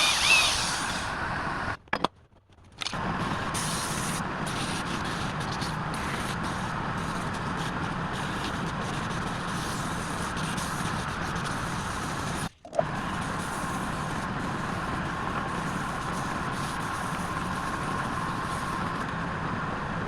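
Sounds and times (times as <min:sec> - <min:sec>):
lathe tool scraping wood: 0:00.0 - 0:01.2
lathe motor hum: 0:00.0 - 0:01.8.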